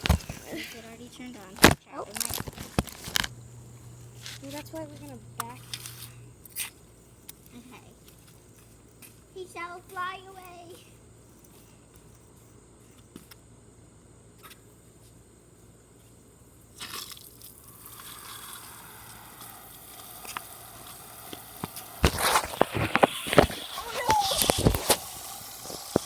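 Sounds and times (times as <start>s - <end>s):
garden hose spraying water: 0.0s - 10.7s, 16.7s - 26.0s.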